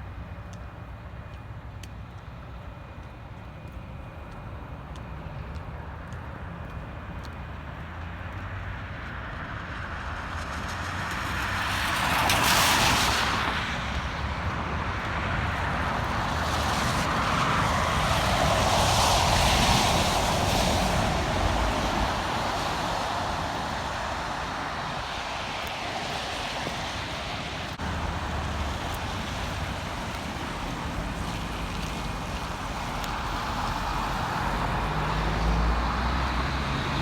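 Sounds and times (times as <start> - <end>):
tyres hissing on slushy road: 7.8 - 37.0.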